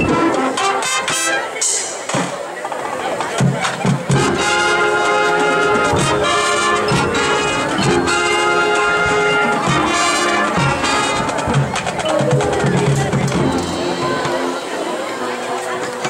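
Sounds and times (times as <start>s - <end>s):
percussion hits: 10.6s - 16.0s.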